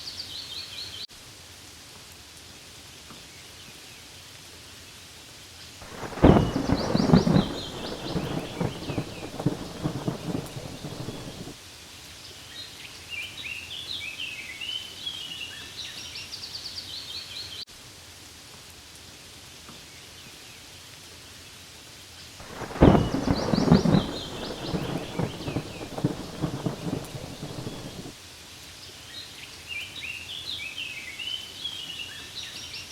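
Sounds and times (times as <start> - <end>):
rain on leaves: 0.0 - 32.9
crackling thunder rumble: 5.8 - 11.6, 22.4 - 28.2.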